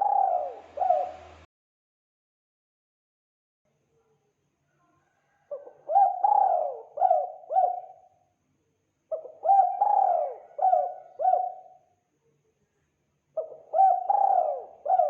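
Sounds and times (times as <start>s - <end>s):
dove cooing: 0.0s - 1.5s, 5.4s - 8.1s, 9.1s - 11.9s, 13.4s - 15.0s.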